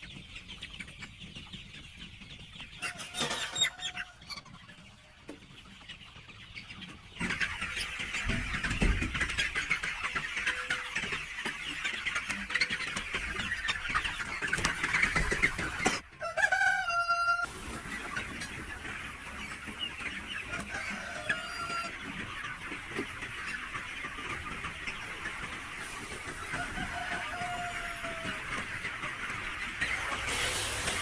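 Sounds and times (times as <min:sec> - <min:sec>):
chickens clucking: 0:00.0 - 0:31.0
rooster crowing: 0:26.5 - 0:28.4.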